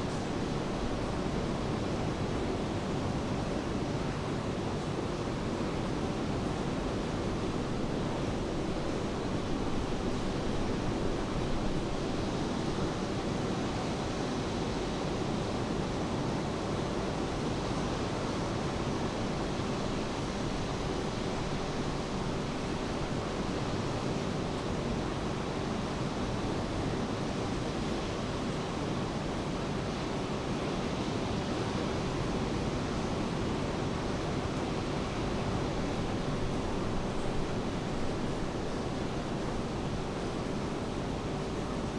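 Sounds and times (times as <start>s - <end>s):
steady rain falling: 0.0s - 2.6s, 5.7s - 14.1s, 18.2s - 29.2s, 31.6s - 41.9s.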